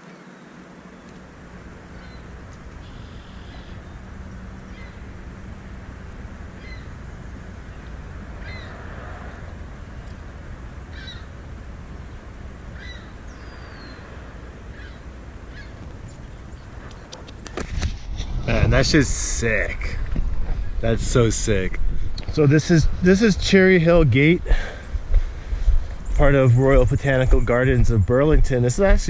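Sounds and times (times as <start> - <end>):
birds calling: 0.0 - 8.7, 14.7 - 17.8
low background rumble: 0.7 - 8.6, 15.5 - 21.2.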